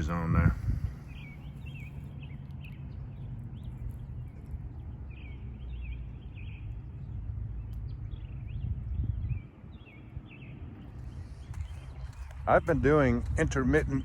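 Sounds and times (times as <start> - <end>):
wind on microphone: 0.0 - 2.2, 6.4 - 14.0
small birds chirping: 0.0 - 14.0.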